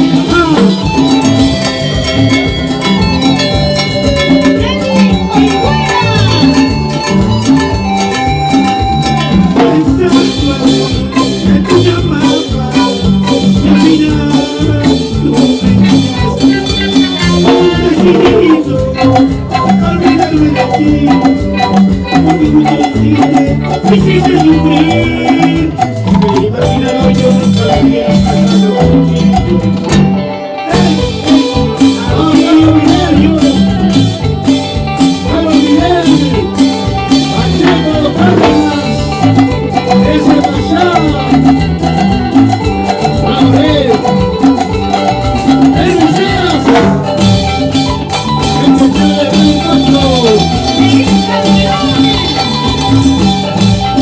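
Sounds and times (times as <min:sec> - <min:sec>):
latin dance band playing: 0:00.0 - 0:54.0.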